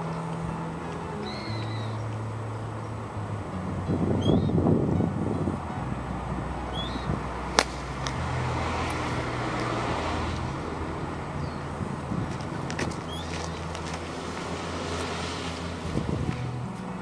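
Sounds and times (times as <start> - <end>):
low wind rumble: 0.0 - 17.0
bird chirp: 1.2 - 2.1, 4.2 - 4.6, 6.7 - 7.2, 13.0 - 13.6
golf club striking ball: 7.4 - 9.8.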